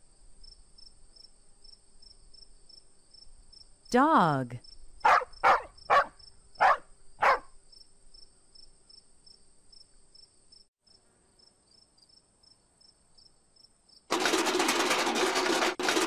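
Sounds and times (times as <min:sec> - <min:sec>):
crickets chirping: 0:00.1 - 0:03.9, 0:04.6 - 0:14.0
dog barking: 0:05.0 - 0:07.5.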